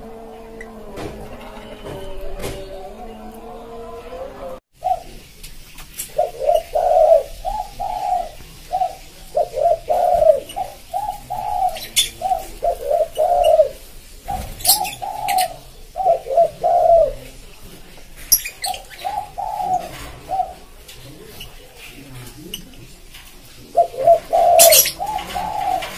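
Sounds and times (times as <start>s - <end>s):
dove cooing: 0.0s - 5.4s, 6.0s - 25.9s.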